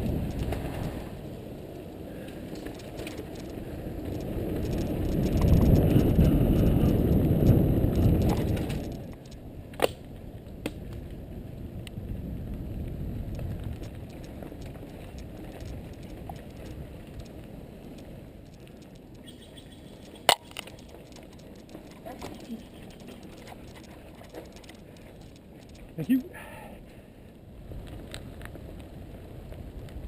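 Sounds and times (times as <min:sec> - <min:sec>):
bike tyres rumbling on dirt: 0:00.0 - 0:09.2, 0:10.8 - 0:19.2
sharp clicks: 0:02.5 - 0:10.0, 0:13.3 - 0:26.3.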